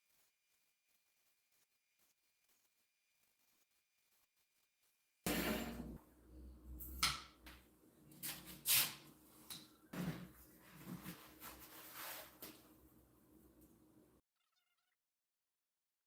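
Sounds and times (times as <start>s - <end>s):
faint steady hum: 5.3s - 8.3s.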